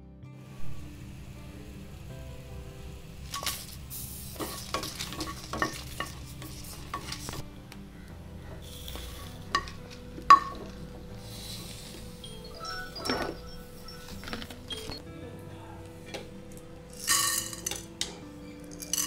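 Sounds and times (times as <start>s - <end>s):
wooden spatula scraping metal pan: 4.3s - 7.4s.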